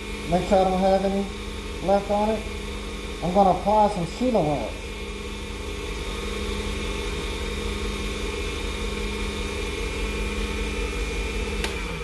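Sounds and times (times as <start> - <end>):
wood lathe motor humming: 0.0 - 12.0.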